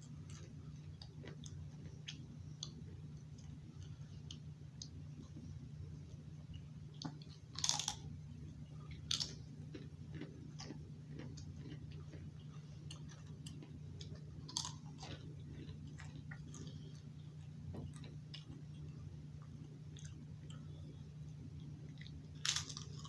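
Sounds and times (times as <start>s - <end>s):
crunching potato chips: 7.1s - 8.1s, 8.9s - 17.0s, 21.9s - 23.0s.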